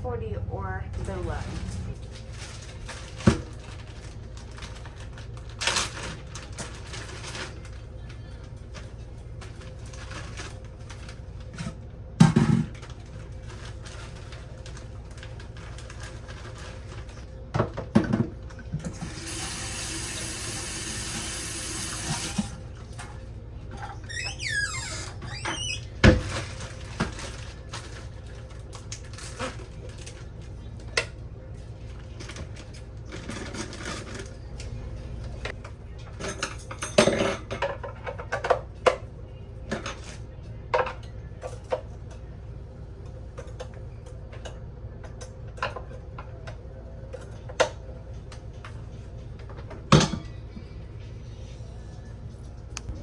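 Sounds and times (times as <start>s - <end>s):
steady low hum: 0.0s - 5.8s
dishes and utensils clattering: 35.4s - 39.0s, 49.5s - 50.4s.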